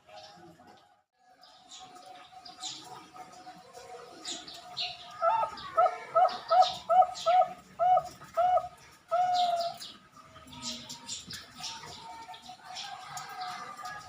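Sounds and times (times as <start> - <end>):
dove cooing: 5.2 - 9.9.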